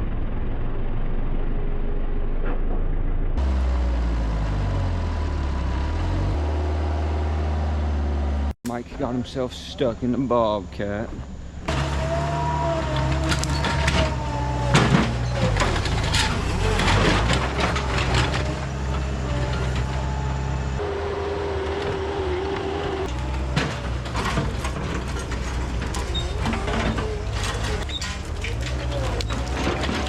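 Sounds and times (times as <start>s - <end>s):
skid steer diesel engine: 0.0s - 30.0s
wood and brush cracking: 11.7s - 19.9s, 22.7s - 30.0s.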